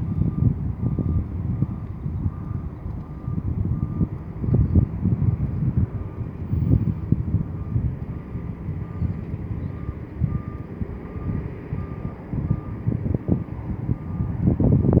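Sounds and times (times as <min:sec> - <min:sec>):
reversing alarm beeping: 0:00.1 - 0:04.9, 0:07.6 - 0:12.9, 0:13.9 - 0:15.0
heavy diesel machinery running: 0:00.1 - 0:14.9.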